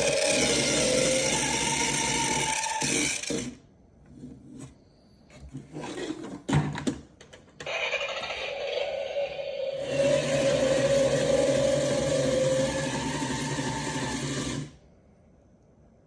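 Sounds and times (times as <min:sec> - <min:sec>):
small motor whirring: 0:00.0 - 0:03.6, 0:07.7 - 0:14.8
scraping and rubbing: 0:04.1 - 0:06.5.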